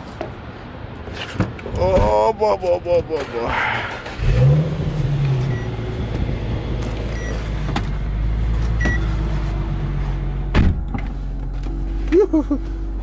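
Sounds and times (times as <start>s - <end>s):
heavy thump: 10.5s - 11.2s.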